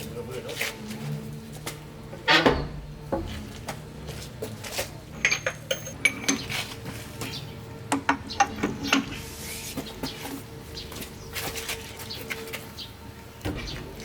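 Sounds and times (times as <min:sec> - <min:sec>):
metal tools clinking and knocking: 0:05.1 - 0:06.7, 0:08.0 - 0:09.2.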